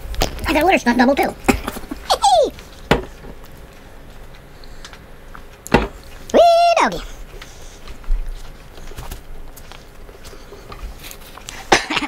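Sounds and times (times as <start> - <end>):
man chewing: 7.0 - 11.9.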